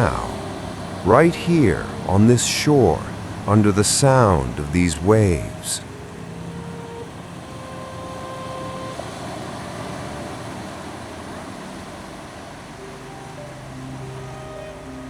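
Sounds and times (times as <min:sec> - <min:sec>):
ocean waves washing on shore: 0:00.0 - 0:15.0
soft ambient music: 0:00.0 - 0:15.0.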